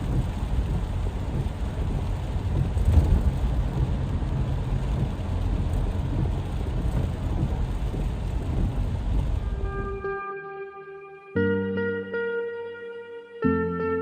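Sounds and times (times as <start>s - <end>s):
heavy rain with low rumble: 0.0s - 10.2s.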